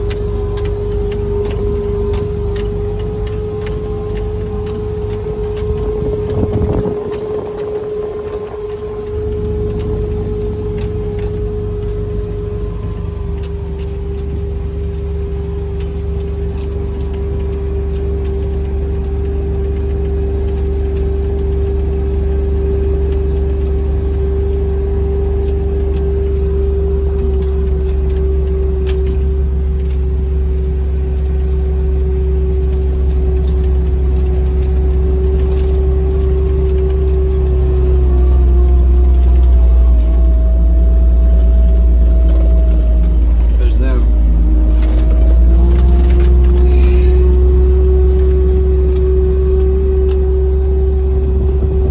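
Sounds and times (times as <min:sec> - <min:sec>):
steady whine: 0:00.0 - 0:17.1, 0:31.8 - 0:51.9
vehicle engine rumble: 0:00.0 - 0:51.9.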